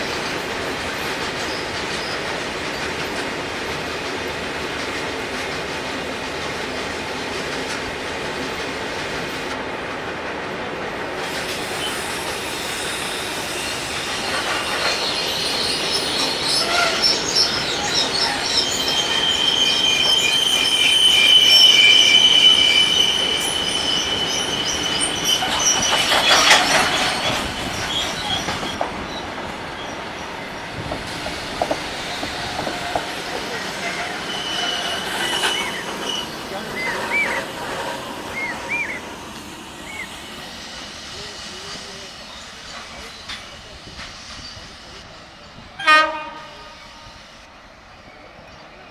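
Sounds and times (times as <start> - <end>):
train running on track: 0.0 - 48.9
high wheel squeal: 11.2 - 29.2, 31.8 - 45.0.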